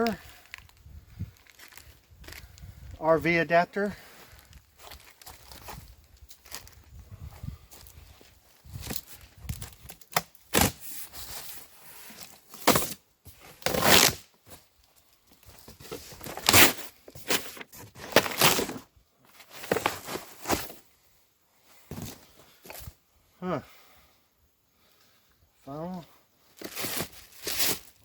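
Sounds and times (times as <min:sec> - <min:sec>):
packaging rustling and tearing: 0:12.2 - 0:14.2, 0:15.4 - 0:20.8, 0:26.6 - 0:28.0.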